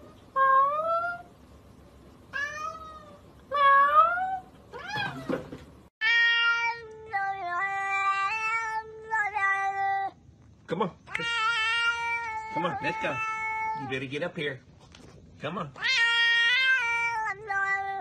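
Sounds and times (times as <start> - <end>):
cat meowing: 2.3 - 5.4, 6.0 - 10.2, 11.1 - 14.0, 15.8 - 18.0.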